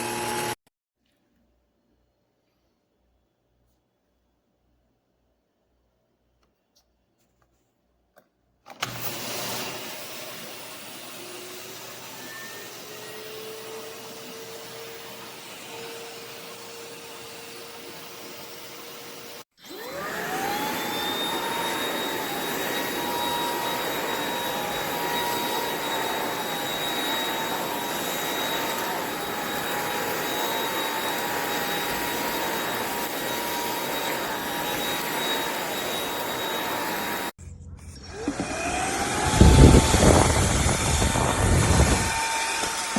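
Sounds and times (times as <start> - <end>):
stick vacuum motor whining: 0.0 - 0.6, 8.7 - 37.3, 38.0 - 42.9.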